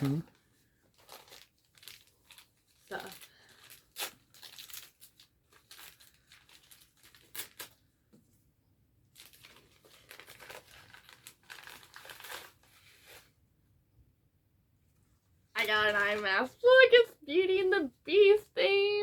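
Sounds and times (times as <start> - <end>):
gift wrapping crinkling: 0.0 - 8.0, 9.0 - 13.3, 15.6 - 16.8.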